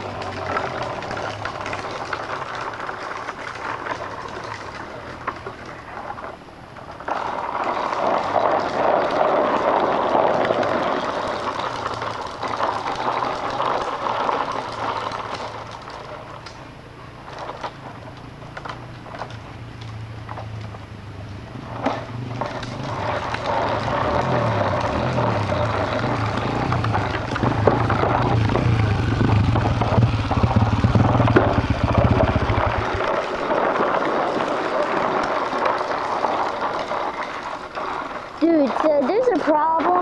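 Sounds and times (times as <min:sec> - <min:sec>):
dirt bike engine: 0:00.0 - 0:40.0.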